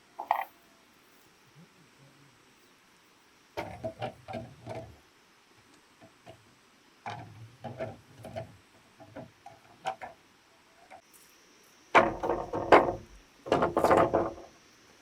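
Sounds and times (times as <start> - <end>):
knocking: 12.0 - 14.5.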